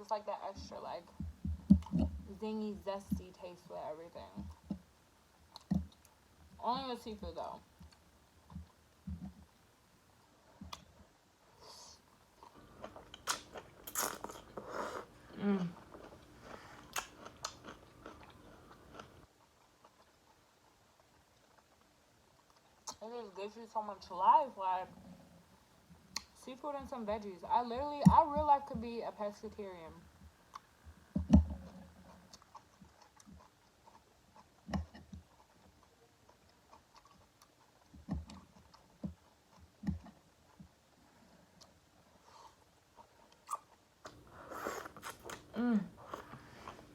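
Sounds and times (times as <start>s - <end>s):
crunchy biting and chewing: 12.4s - 21.8s, 30.5s - 40.9s, 41.6s - 46.9s
wet mouth clicks: 12.9s - 19.2s, 43.4s - 46.9s
person humming: 15.3s - 15.8s, 45.5s - 46.2s.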